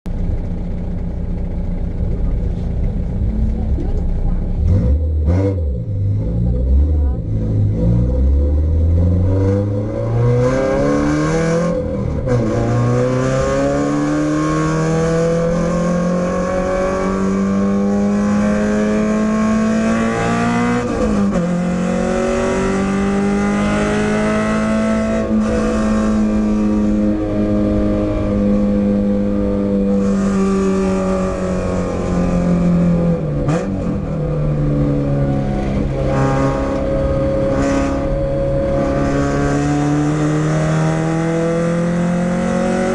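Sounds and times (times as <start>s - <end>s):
car engine revving hard: 4.6s - 42.9s.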